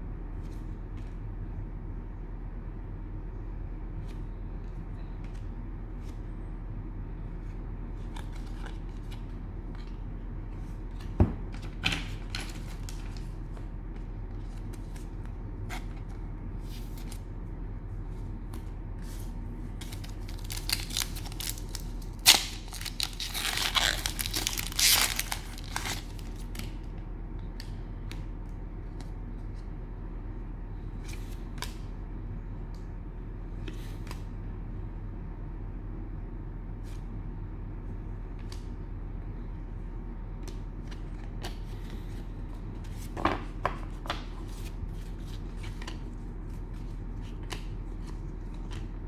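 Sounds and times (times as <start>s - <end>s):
steady low hum: 0.0s - 49.0s
cellophane wrapper crinkling: 19.8s - 26.7s.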